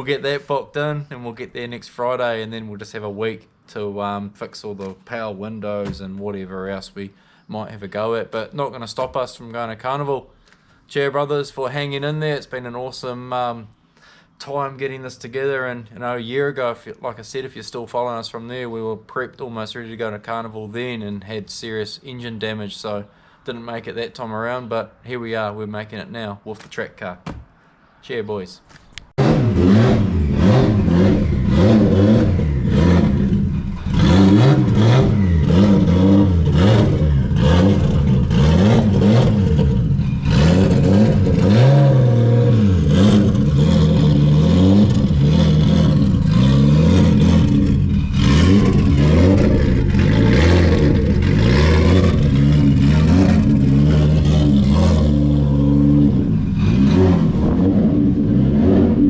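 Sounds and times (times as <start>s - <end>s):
car engine accelerating hard: 29.2s - 59.0s.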